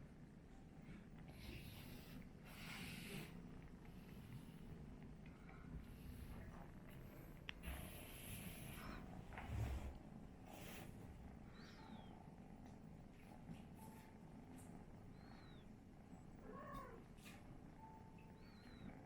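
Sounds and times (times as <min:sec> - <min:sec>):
kitten purring: 0:01.1 - 0:19.0.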